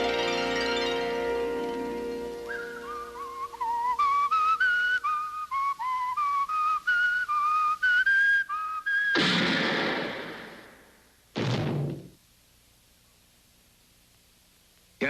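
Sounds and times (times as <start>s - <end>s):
whistled tune: 0.0s - 9.2s
loud sudden bang: 9.1s - 12.2s.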